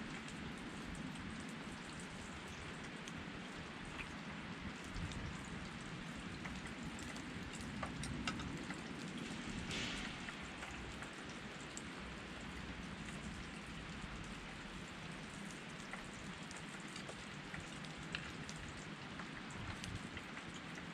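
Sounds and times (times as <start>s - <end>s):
campfire crackling and popping: 5.0s - 11.9s.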